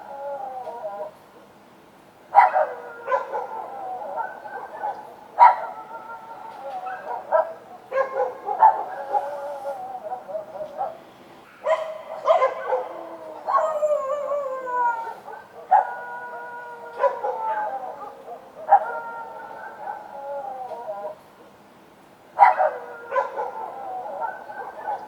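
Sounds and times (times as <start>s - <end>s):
dogs howling: 0.0s - 1.2s, 2.3s - 11.0s, 11.6s - 21.2s, 22.4s - 25.0s
dogs barking: 2.3s - 14.1s, 15.0s - 20.2s, 22.4s - 25.0s.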